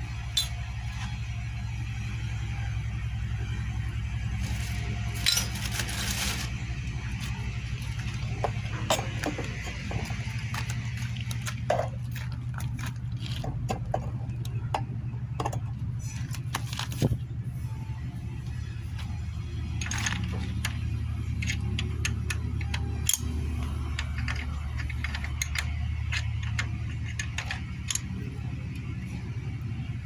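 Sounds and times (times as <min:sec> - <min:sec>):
steady low hum: 0:00.0 - 0:30.0
metal tools clinking and knocking: 0:00.3 - 0:00.7, 0:05.1 - 0:05.8, 0:08.3 - 0:10.7, 0:19.7 - 0:28.1.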